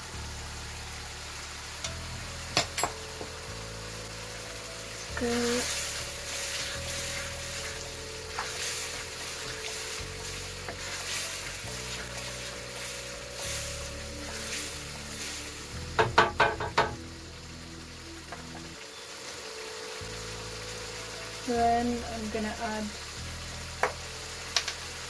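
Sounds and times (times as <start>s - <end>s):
sauce sizzling in a wok: 0.0s - 25.0s
soft background music: 0.0s - 25.0s
wooden spoon knocking on wok: 15.9s - 17.0s.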